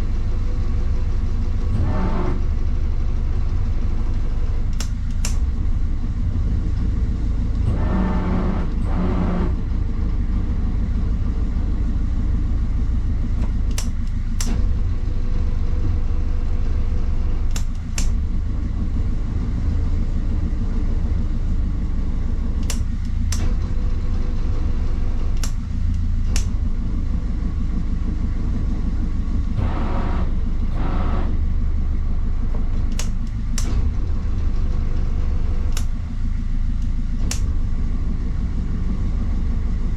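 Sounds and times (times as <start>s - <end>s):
boat diesel engine rumbling: 0.0s - 39.9s
sharp clicks: 4.1s - 5.7s, 13.4s - 14.8s, 17.5s - 18.2s, 22.6s - 23.8s, 25.2s - 26.6s, 32.6s - 34.4s, 35.6s - 37.6s.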